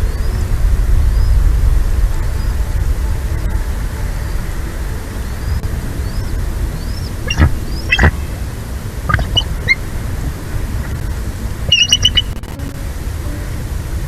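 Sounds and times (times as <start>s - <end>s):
low rumble of wind: 0.0s - 14.0s
bird calls: 5.4s - 12.6s.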